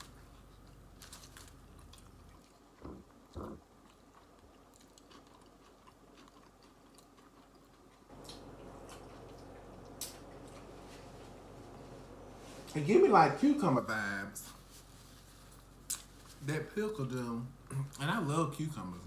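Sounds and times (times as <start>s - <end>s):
person chewing food: 0.0s - 11.8s.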